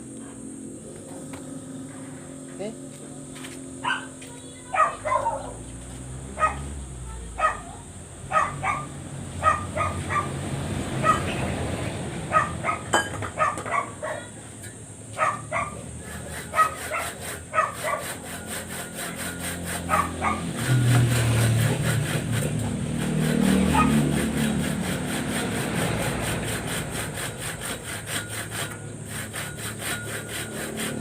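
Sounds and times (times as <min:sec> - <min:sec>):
low engine rumble: 0:00.0 - 0:16.0
dog barking: 0:03.8 - 0:05.7, 0:06.3 - 0:06.7, 0:07.4 - 0:10.4, 0:11.0 - 0:11.4, 0:12.3 - 0:14.4, 0:15.2 - 0:15.9, 0:16.5 - 0:18.2, 0:19.8 - 0:20.7, 0:23.6 - 0:24.1.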